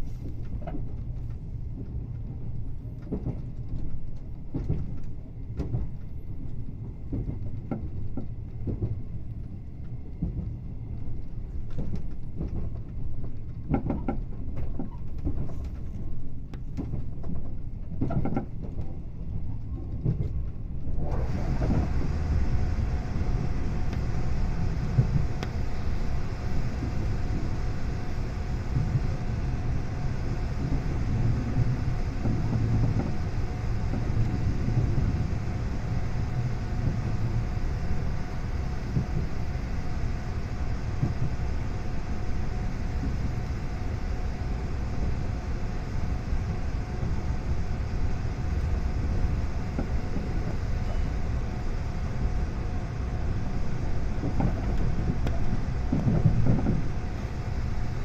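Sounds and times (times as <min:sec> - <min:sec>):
train wheels rumbling on rail: 0:00.0 - 0:58.0
faint steady hum: 0:20.6 - 0:58.0.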